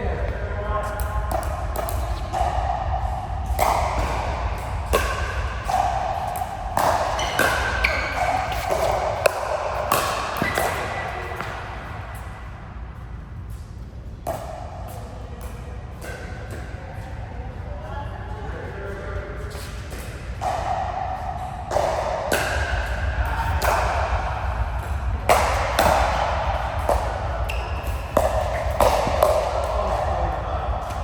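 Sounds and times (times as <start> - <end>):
ball hits and thuds: 0.0 - 11.9, 21.7 - 31.0.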